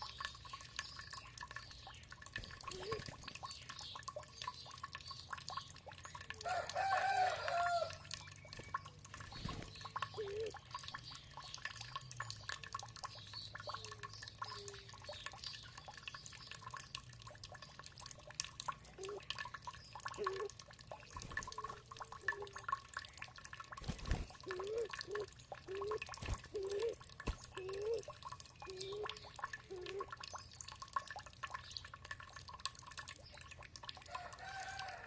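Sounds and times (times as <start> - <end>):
water trickling and dripping: 0.0 - 35.0
birds calling: 0.1 - 6.5, 7.6 - 16.8, 23.9 - 30.6.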